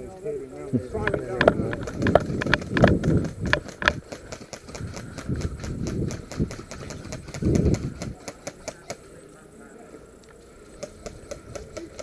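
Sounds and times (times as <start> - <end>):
low thumps: 0.8 - 8.2
airsoft guns firing: 1.1 - 9.0, 10.8 - 12.0.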